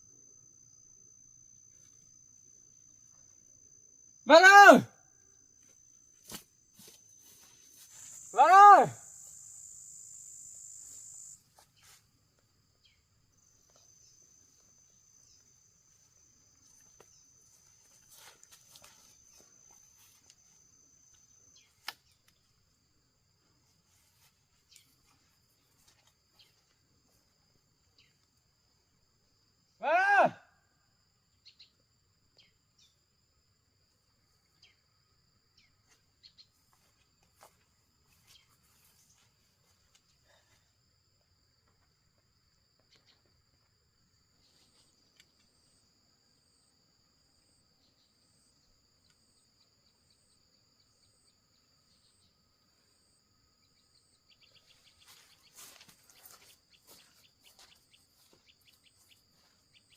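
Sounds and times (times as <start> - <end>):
insect trilling: 0.0 - 11.9
faint insects trilling: 0.0 - 59.9.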